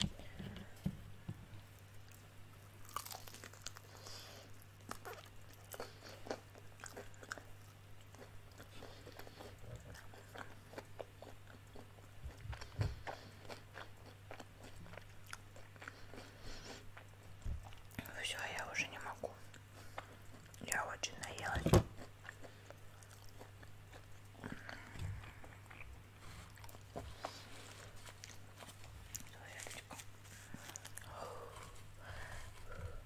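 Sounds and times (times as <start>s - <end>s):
crunching fried chicken: 2.1s - 16.4s.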